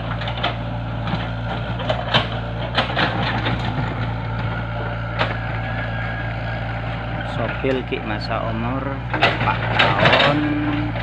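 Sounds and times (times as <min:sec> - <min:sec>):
excavator engine running: 0:00.0 - 0:11.0
sharp knocks and cracks: 0:00.2 - 0:04.5, 0:09.1 - 0:11.0.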